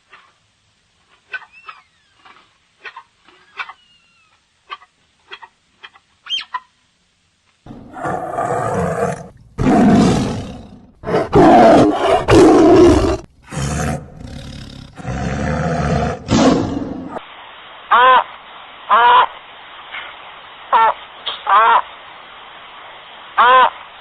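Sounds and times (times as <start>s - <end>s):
lion roaring: 7.7s - 17.2s.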